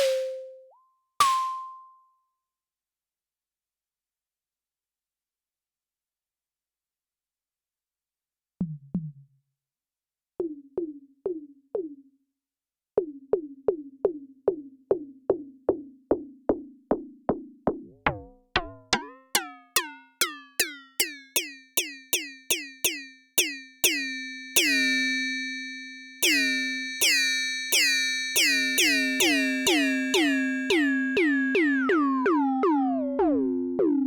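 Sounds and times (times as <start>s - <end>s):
pitched digital percussion hits: 0.0s - 1.9s, 18.0s - 25.1s.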